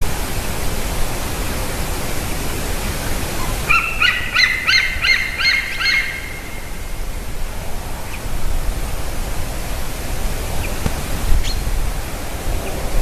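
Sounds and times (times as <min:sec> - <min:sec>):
background hiss: 0:00.0 - 0:13.0
eaglet chirping: 0:03.4 - 0:06.7.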